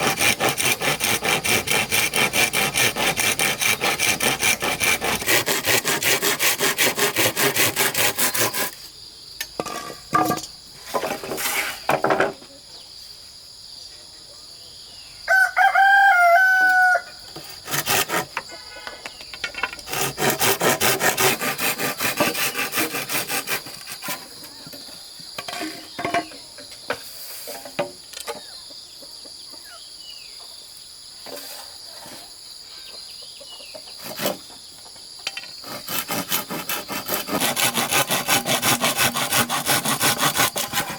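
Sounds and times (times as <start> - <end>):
hand saw cutting: 0.0 - 8.8, 17.4 - 18.4, 19.7 - 24.6, 34.0 - 34.5, 35.6 - 40.9
rooster crowing: 15.3 - 17.2.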